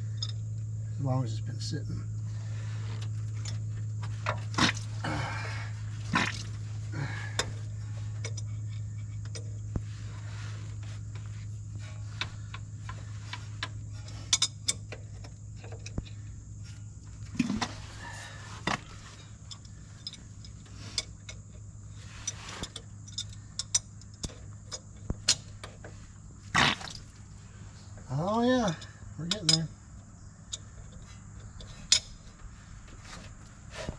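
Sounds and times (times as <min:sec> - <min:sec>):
steady low hum: 0:00.0 - 0:33.9
wrench scrapes: 0:22.0 - 0:23.4.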